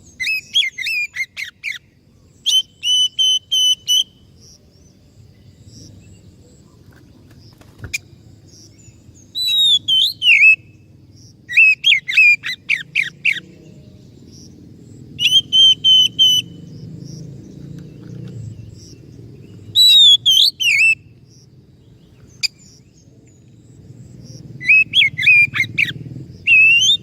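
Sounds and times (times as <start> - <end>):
bird singing whistled phrases: 2.4 - 4.2, 9.3 - 10.8, 11.5 - 13.5, 15.2 - 16.6, 19.7 - 21.1, 24.6 - 27.0.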